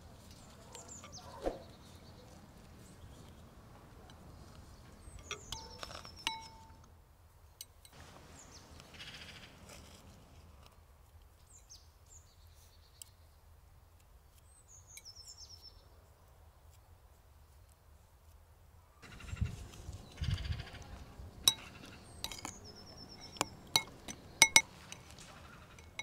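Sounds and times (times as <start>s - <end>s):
birds chirping: 0.0s - 6.8s, 19.0s - 26.0s
spoons clicking on ceramic bowls: 4.0s - 6.9s, 19.6s - 26.0s.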